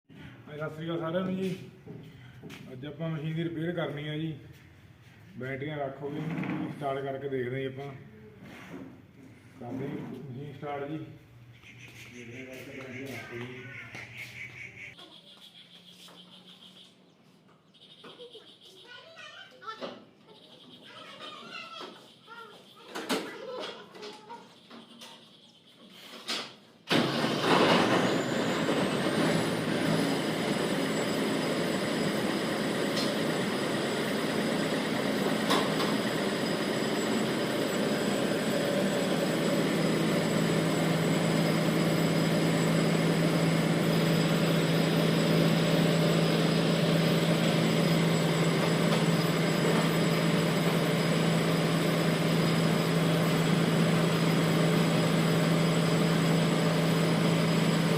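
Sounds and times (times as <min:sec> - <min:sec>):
diesel engine starting and running: 0:26.0 - 0:57.9
high whine rising in pitch: 0:28.2 - 0:57.9.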